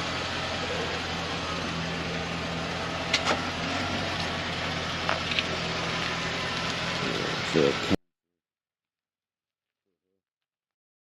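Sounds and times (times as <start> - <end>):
engine humming steadily: 0.0 - 8.0.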